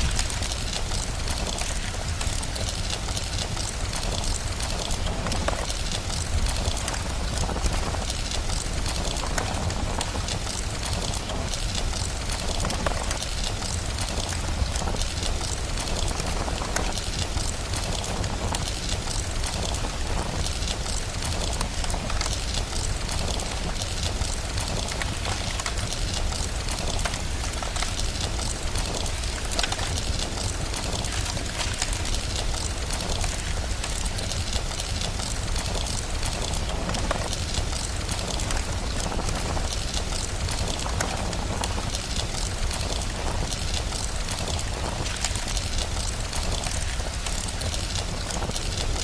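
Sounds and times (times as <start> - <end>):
fire crackling: 0.0 - 49.0
rain-like hiss: 0.0 - 49.0.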